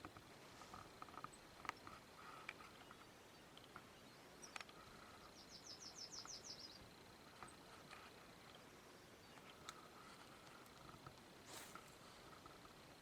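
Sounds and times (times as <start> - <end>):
faint clicks: 0.0 - 5.3, 9.3 - 12.8
songbird trilling: 2.7 - 6.8.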